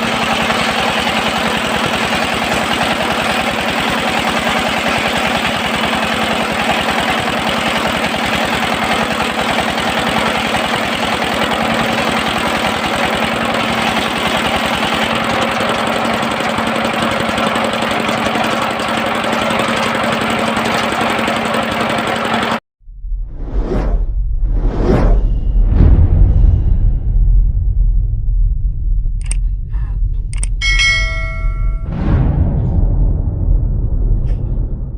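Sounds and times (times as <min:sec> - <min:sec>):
sawmill engine knocking pulse: 0:00.0 - 0:22.6.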